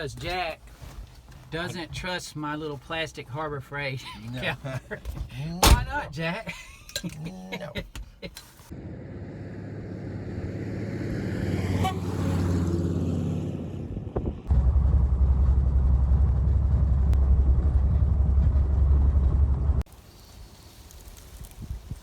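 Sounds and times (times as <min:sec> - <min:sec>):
engine running: 0:08.7 - 0:20.0.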